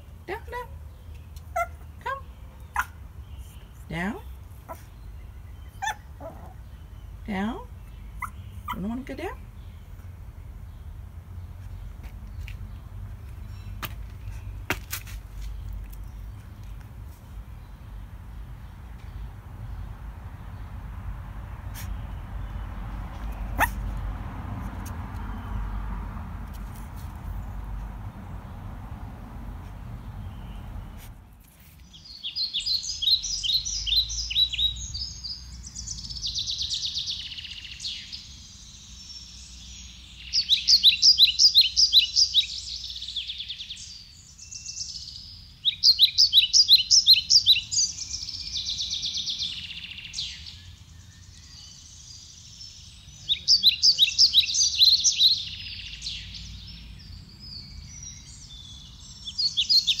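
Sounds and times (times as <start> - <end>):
songbird chirping trills: 0.0 - 24.2, 24.8 - 60.0
faint low outdoor rumble: 0.0 - 41.0.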